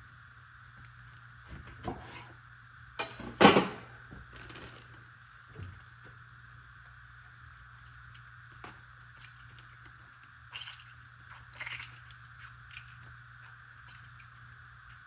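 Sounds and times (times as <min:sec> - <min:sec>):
faint steady hum: 0:00.0 - 0:15.0
lemon squeezed by hand squishing: 0:06.7 - 0:15.0.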